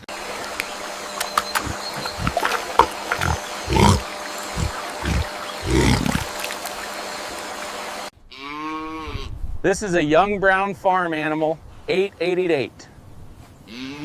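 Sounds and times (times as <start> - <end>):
piglet grunting: 1.5 - 6.4.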